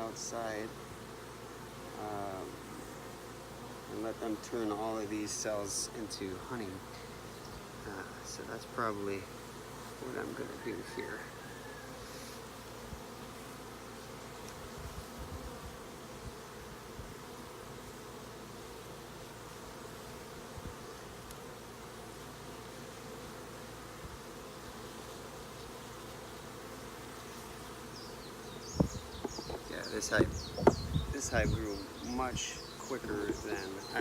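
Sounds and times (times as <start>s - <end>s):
honey bees buzzing: 0.0s - 34.0s
faint knocks: 28.8s - 30.9s.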